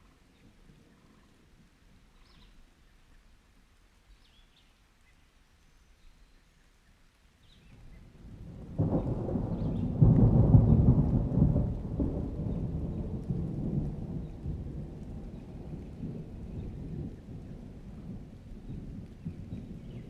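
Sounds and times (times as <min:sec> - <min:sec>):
thunder rumbling: 0:07.9 - 0:20.0.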